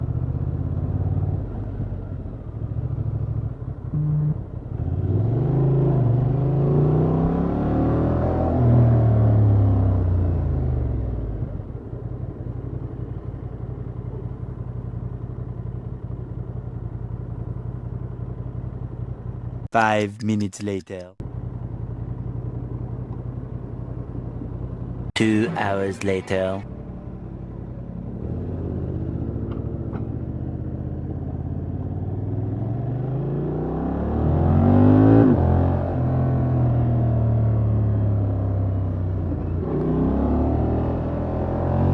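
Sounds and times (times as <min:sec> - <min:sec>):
motorcycle engine idling: 0:00.0 - 0:04.8, 0:11.2 - 0:19.7, 0:21.2 - 0:25.1, 0:26.6 - 0:32.3.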